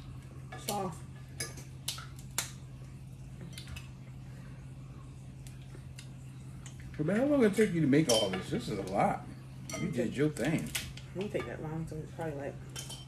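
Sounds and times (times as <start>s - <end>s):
steady low hum: 0.0s - 13.0s
crab shells cracking: 1.7s - 2.6s, 10.3s - 11.2s.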